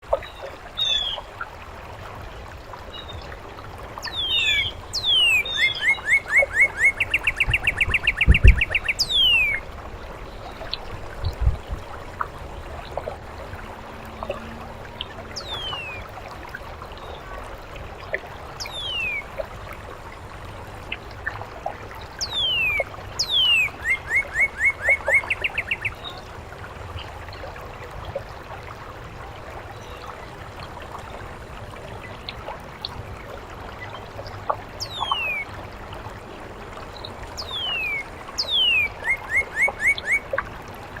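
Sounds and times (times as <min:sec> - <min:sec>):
fountain water trickling: 0:00.0 - 0:41.0
songbird singing: 0:00.1 - 0:01.4, 0:04.0 - 0:13.1, 0:14.0 - 0:16.1, 0:18.0 - 0:19.4, 0:22.0 - 0:26.3, 0:33.8 - 0:35.6, 0:36.4 - 0:40.4.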